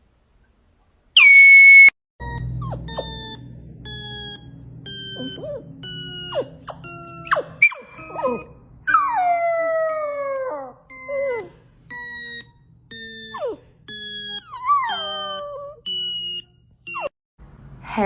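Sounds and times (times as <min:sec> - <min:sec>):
short electronic beeps: 0:01.2 - 0:08.6, 0:11.9 - 0:17.1
dog whining: 0:01.2 - 0:17.2.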